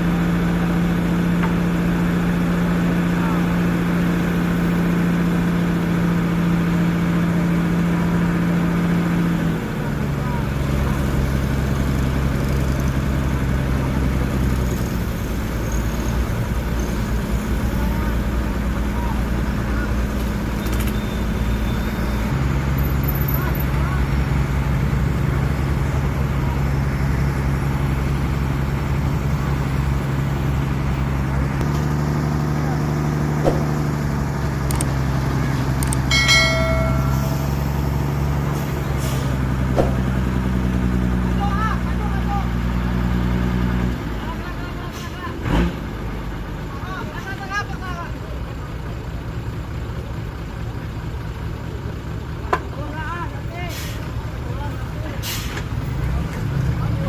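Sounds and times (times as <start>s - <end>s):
truck engine idling: 0.0s - 57.0s
high-pitched tone: 36.1s - 38.5s.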